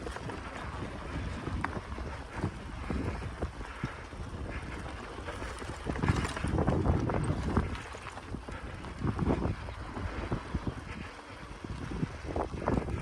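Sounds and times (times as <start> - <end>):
wind rumbling on microphone: 0.0 - 13.0
bicycle knocks and rattles: 4.5 - 9.6.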